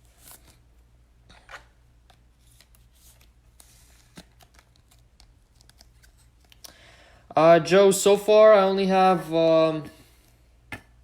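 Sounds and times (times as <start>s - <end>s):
trading cards rustling: 1.3s - 6.8s.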